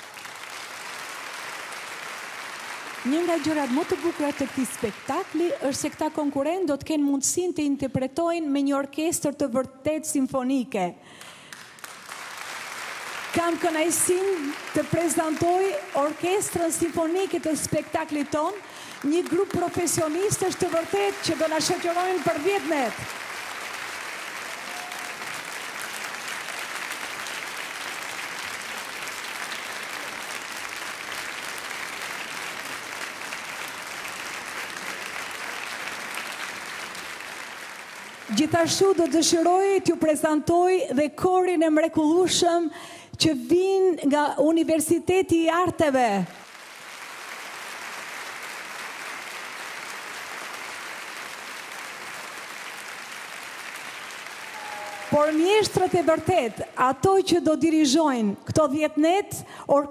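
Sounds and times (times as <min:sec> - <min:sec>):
audience applauding: 0:00.0 - 0:06.1, 0:11.2 - 0:39.8, 0:46.4 - 0:56.7.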